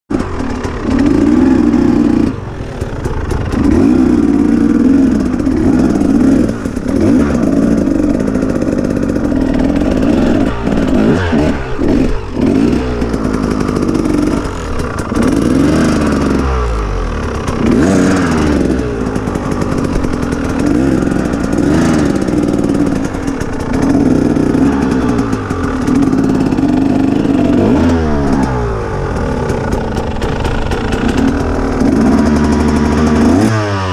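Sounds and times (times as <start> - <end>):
motorcycle engine revving: 0.1 - 33.9.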